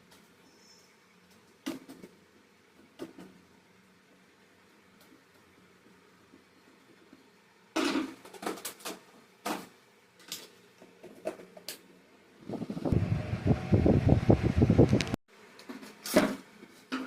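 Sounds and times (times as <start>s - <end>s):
fast low fluttering rattle: 12.4s - 15.2s.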